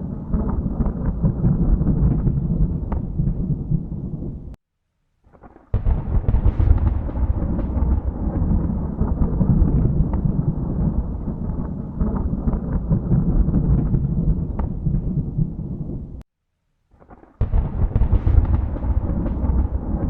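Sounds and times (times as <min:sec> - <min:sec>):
thunder rumbling: 0:00.0 - 0:04.6, 0:05.5 - 0:16.2, 0:17.4 - 0:20.0.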